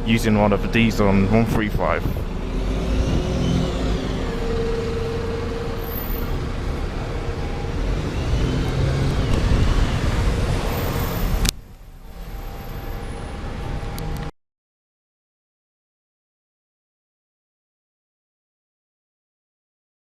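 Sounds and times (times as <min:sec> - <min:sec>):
bus diesel engine pulling away: 0:00.0 - 0:14.3.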